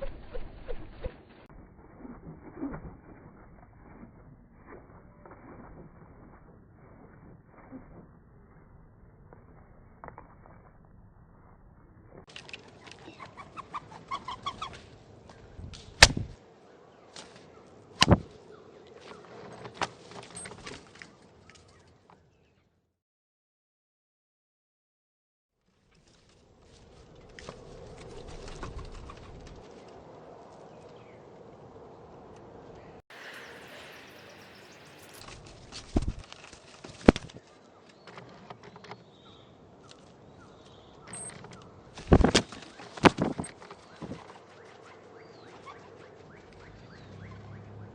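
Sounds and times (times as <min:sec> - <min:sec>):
birds calling: 0:12.4 - 0:16.0, 0:32.8 - 0:35.2, 0:37.6 - 0:47.9.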